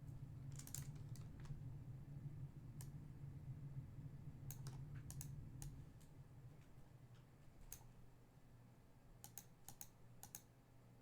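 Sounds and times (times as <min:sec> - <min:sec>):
low steady hum: 0:00.0 - 0:11.0
computer keyboard clicks: 0:04.5 - 0:05.8, 0:07.7 - 0:07.9, 0:09.2 - 0:10.5.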